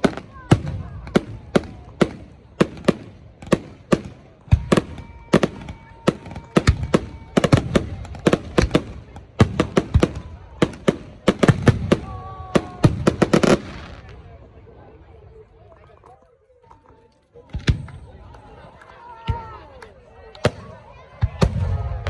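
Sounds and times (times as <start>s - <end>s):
fireworks bangs: 0.0s - 14.4s.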